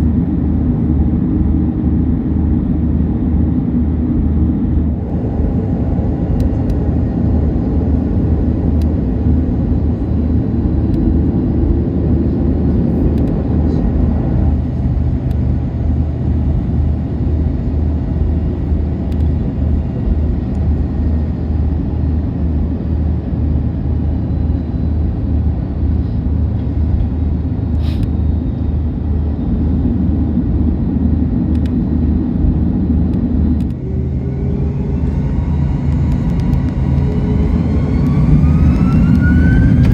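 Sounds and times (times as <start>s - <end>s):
airplane cabin engine rumble: 0.0s - 39.9s
rising tone: 33.4s - 39.9s.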